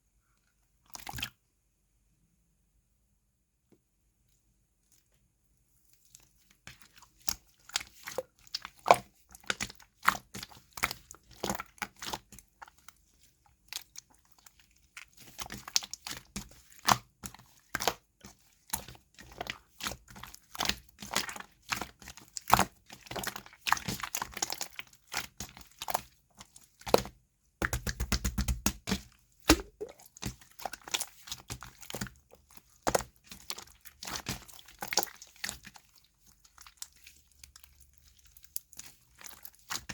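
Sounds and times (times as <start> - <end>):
slime crackling and popping: 29.5 - 31.8.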